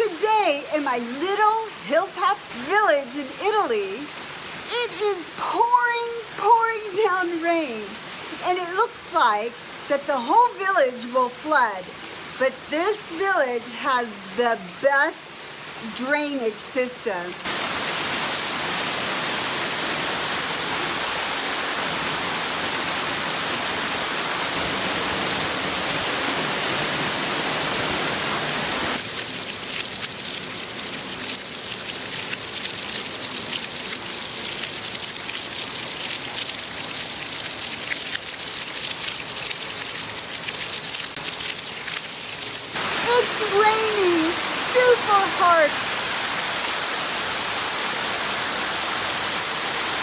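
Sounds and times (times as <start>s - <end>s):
torrential rain pouring: 0.0s - 50.0s.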